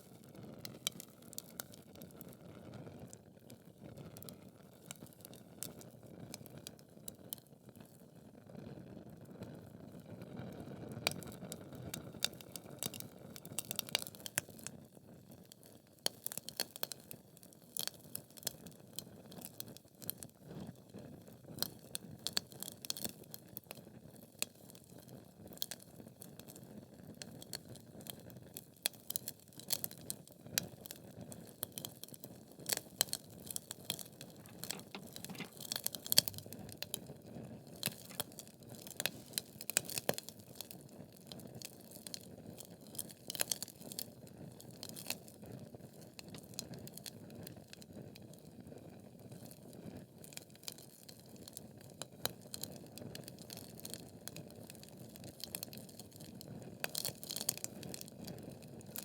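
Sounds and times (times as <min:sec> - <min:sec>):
logs crackling and popping: 0:34.4 - 0:36.9.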